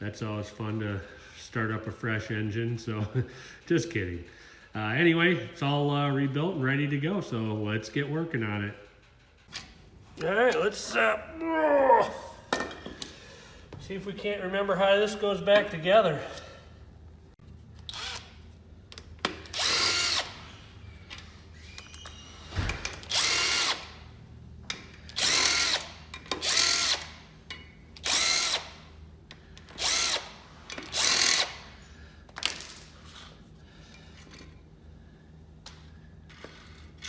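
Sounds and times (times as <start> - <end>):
power drill spinning: 17.9 - 18.3, 19.5 - 20.7, 23.0 - 23.9, 25.1 - 27.2, 28.0 - 28.8, 29.7 - 31.8.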